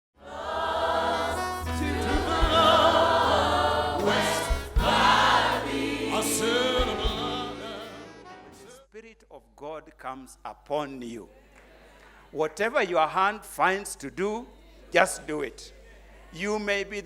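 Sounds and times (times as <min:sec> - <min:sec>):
choir singing gospel music: 0:00.2 - 0:08.8
instrumental accompaniment: 0:00.4 - 0:08.7.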